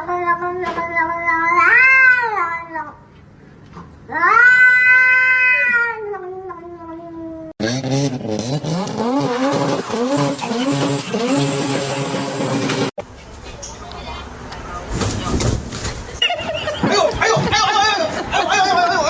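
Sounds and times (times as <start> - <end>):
cat yowling: 1.3 - 2.9, 4.1 - 7.5.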